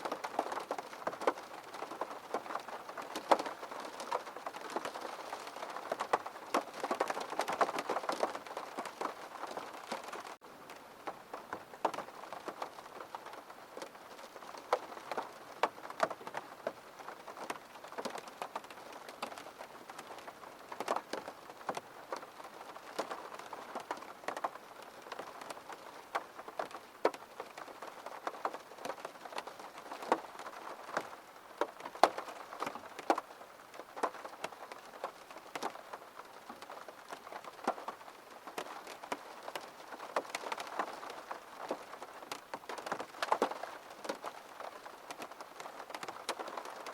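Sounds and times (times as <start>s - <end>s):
faint rain patter: 0.0s - 46.9s
raindrops tapping on window: 0.0s - 46.9s.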